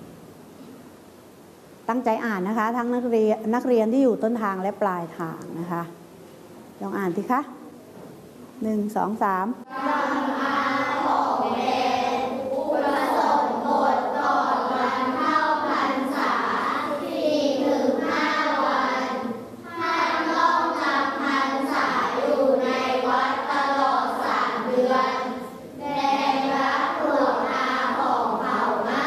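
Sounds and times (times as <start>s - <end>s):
children reading aloud in unison: 9.6s - 29.0s.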